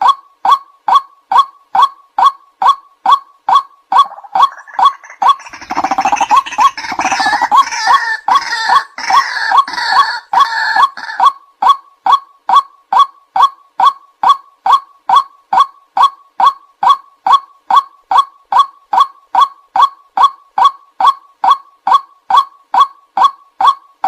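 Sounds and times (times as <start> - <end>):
bird calling kwak notes: 0.0 - 20.7
rapid harsh bird calling: 3.9 - 11.3.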